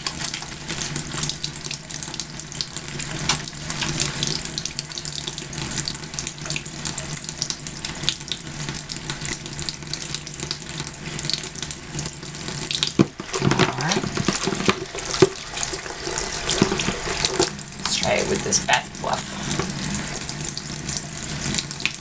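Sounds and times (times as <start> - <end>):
water running from tap: 0.0 - 22.0
hands lathering soap: 12.9 - 20.2.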